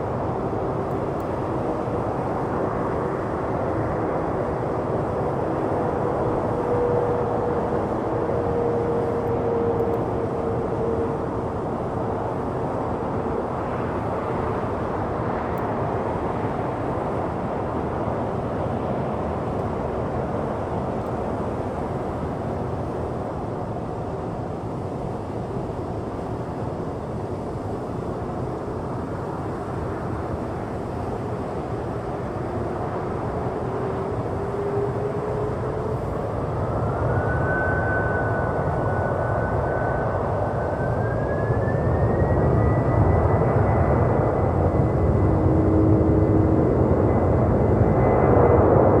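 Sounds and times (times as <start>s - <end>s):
jet engines spooling up: 28.1s - 49.0s.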